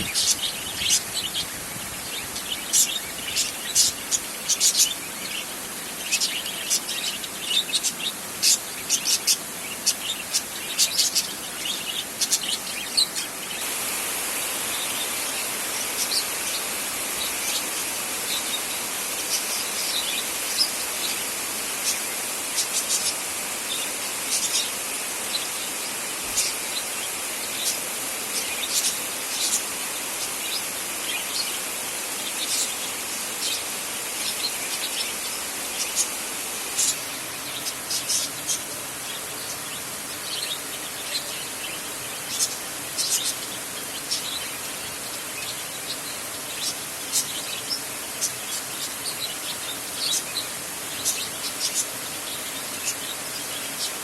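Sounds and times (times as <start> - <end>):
birds chirping: 0.0 - 54.0
steady high hiss: 0.0 - 54.0.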